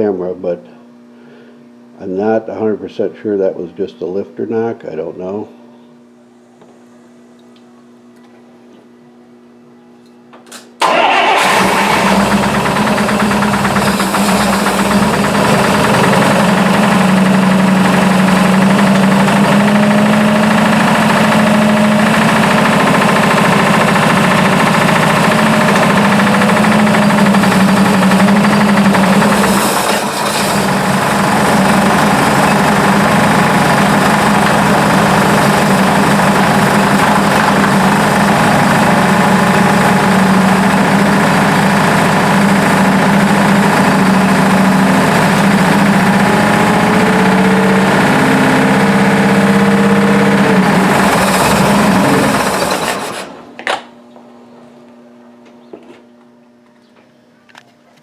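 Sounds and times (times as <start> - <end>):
car engine running with a knock: 12.2 - 48.0.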